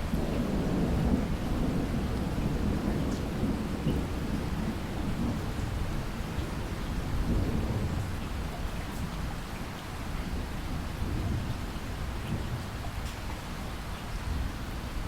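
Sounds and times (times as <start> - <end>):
thunder rumbling low: 0.0 - 8.4
steady rainfall: 0.0 - 15.0.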